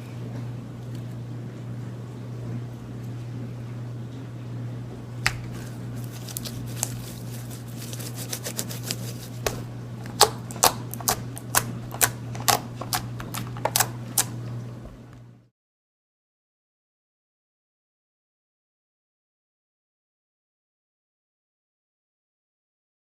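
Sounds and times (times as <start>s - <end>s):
steady low hum: 0.0s - 15.5s
air popping in sharp clicks: 5.2s - 5.6s
slime squishing: 5.2s - 15.1s.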